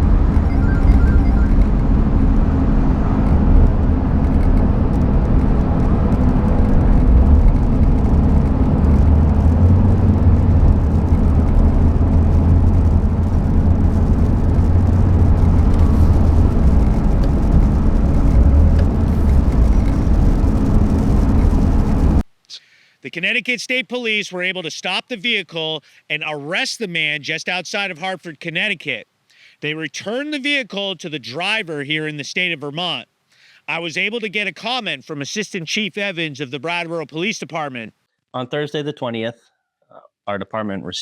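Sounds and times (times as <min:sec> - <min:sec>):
vehicle engine and road noise: 0:00.0 - 0:22.3.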